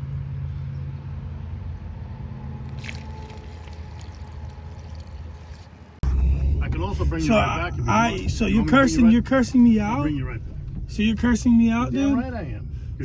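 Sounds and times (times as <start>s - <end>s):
steady low rumble: 1.5s - 13.0s
fuel pouring and gurgling: 2.7s - 6.0s.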